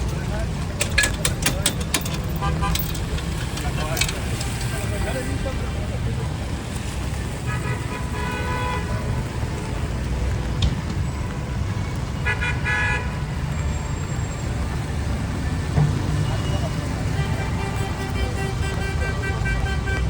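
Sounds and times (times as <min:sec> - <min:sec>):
city street traffic: 0:00.0 - 0:20.0
car horns honking: 0:00.7 - 0:04.8, 0:07.4 - 0:09.2, 0:12.2 - 0:13.4, 0:15.9 - 0:20.0.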